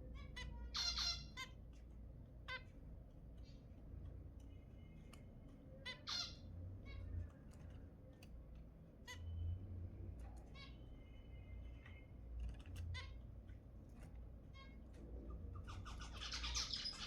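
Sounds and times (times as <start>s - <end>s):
finches calling: 5.7s - 7.2s, 15.6s - 17.0s.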